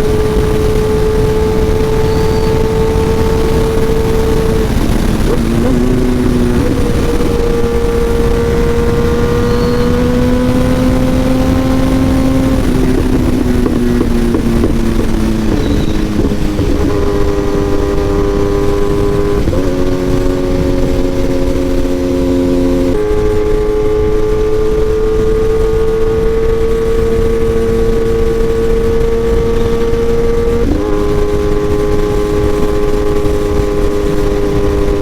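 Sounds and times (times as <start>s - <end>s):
motorcycle engine revving: 0.0s - 35.0s
wind noise: 0.0s - 35.0s.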